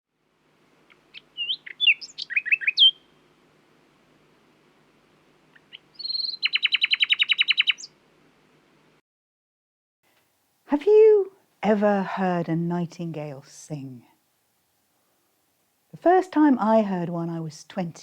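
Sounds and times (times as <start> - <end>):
nightingale singing: 0.9 - 3.2, 5.5 - 8.0.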